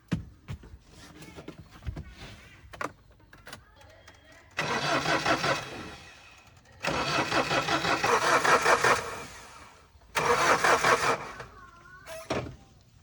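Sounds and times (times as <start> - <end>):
truck engine starter cranking: 4.4 - 12.4.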